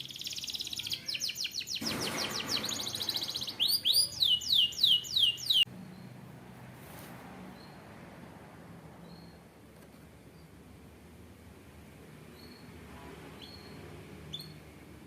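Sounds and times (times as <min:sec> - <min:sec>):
canary trilling: 0:00.0 - 0:06.0.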